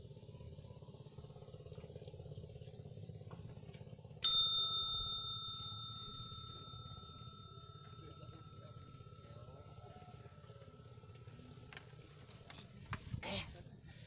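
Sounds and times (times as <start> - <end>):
low motor hum: 0.0 - 14.0
small metal bell ringing: 4.2 - 11.7.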